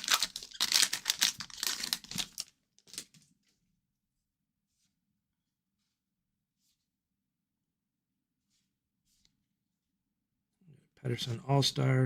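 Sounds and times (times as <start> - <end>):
wrapper being torn and crinkled: 0.0 - 3.2.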